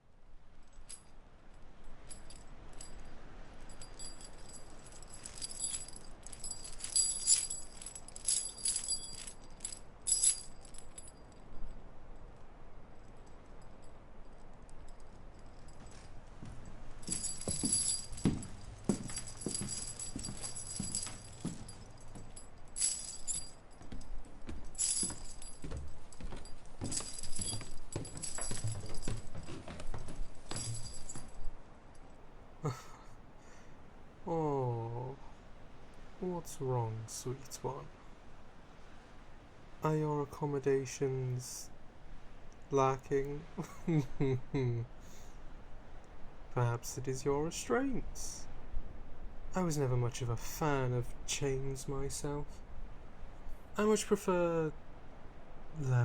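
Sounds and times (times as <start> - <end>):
metal chains rattling: 1.9 - 11.8, 13.1 - 32.2
metal jangling: 1.9 - 32.2
slow footsteps thudding: 14.9 - 31.6.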